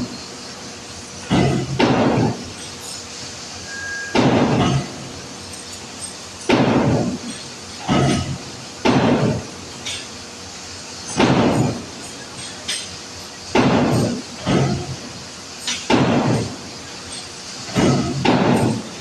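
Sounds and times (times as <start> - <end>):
hammer striking metal: 3.7 - 5.0.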